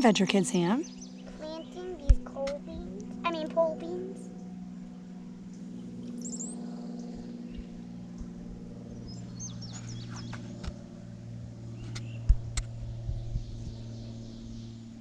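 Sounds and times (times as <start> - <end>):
small birds chirping: 0.0 - 8.3, 8.9 - 10.6
steady low hum: 0.0 - 15.0.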